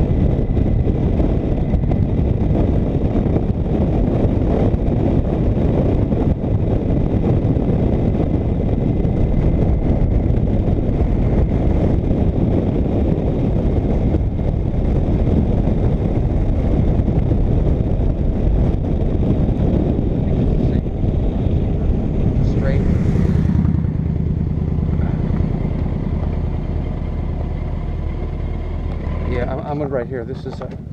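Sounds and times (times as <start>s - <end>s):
motorcycle engine: 0.0s - 30.9s
wind buffeting microphone: 0.0s - 30.9s.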